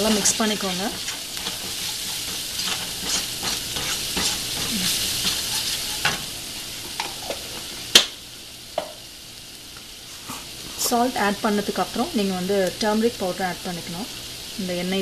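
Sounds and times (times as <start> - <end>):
wooden spatula scraping pan: 0.0 - 6.3
vegetables sizzling in oil: 0.0 - 15.0.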